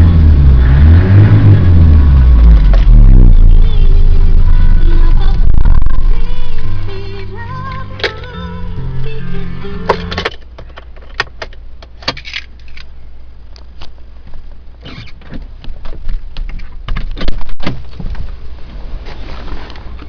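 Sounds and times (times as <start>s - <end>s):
steady low rumble: 0.0s - 19.0s
music: 3.8s - 10.3s.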